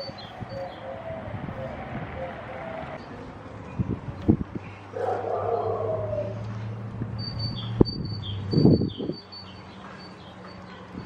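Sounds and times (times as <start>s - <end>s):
small bird singing high chirps: 7.2s - 10.9s.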